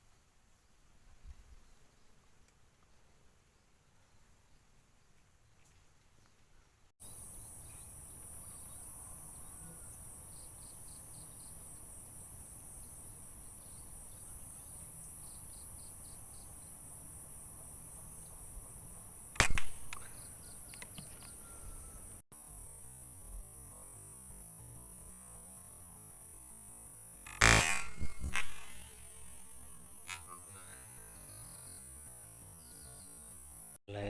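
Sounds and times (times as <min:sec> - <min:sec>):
insects trilling: 0:07.0 - 0:33.8
air rifle shot: 0:19.4 - 0:20.2, 0:27.4 - 0:29.8.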